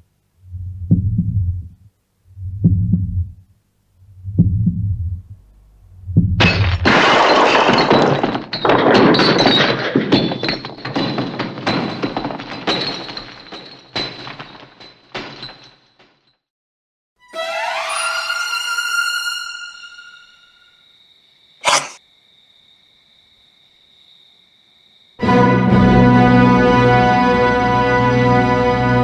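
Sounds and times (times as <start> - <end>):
low heartbeat-like thumps: 0.4 - 6.6
crash of breaking objects: 6.4 - 16.2
high ringing tone: 17.3 - 20.9.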